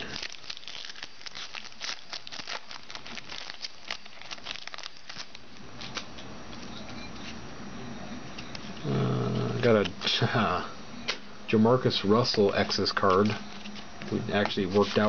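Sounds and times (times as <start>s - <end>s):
foil wrapper crinkling: 0.0s - 6.1s, 12.2s - 15.0s.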